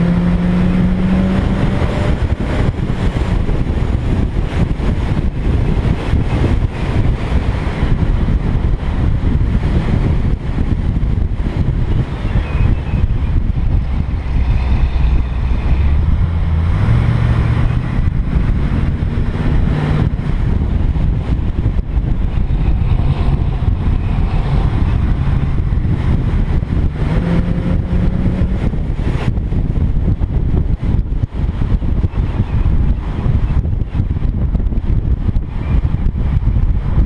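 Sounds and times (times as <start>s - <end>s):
car engine revving: 0.0s - 31.8s
wind buffeting microphone: 0.0s - 37.0s.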